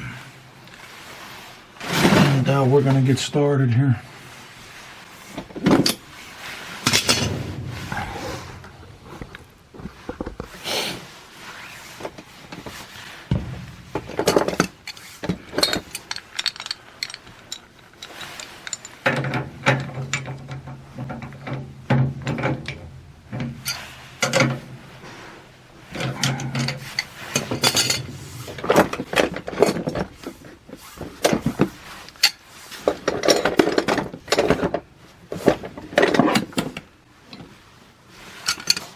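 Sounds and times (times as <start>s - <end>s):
steady low hum: 6.8s - 10.5s, 12.7s - 17.6s
metal tools clanking: 6.9s - 9.6s, 13.3s - 24.6s, 25.9s - 30.2s.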